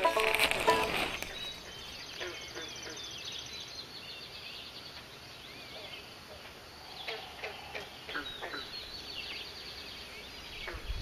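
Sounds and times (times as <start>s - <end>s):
bird chirps and trills: 0.0s - 6.1s.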